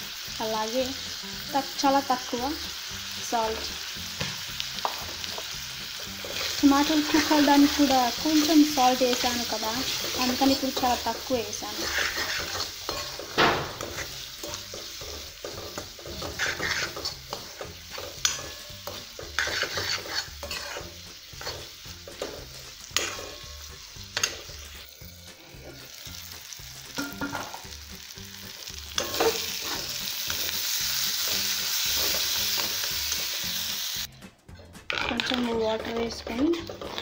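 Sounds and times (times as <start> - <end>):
food sizzling: 0.0 - 34.2, 34.8 - 37.0
spoon scraping metal pan: 6.0 - 24.6, 28.9 - 30.5, 34.9 - 37.0
spoon clinking against pan: 12.4 - 20.7, 27.0 - 27.7, 29.0 - 29.5.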